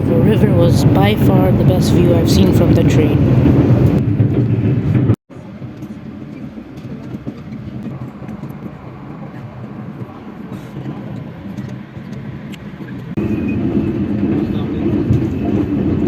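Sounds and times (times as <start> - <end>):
moving passenger train interior: 0.0 - 4.0.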